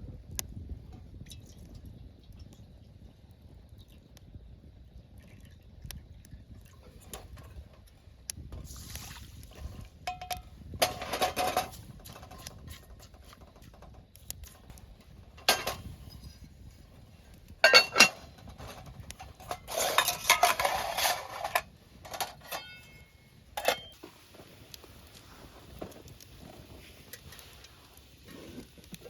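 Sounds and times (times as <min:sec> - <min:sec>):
metal cookware clattering: 0:10.0 - 0:12.4, 0:15.4 - 0:16.0, 0:17.6 - 0:24.0.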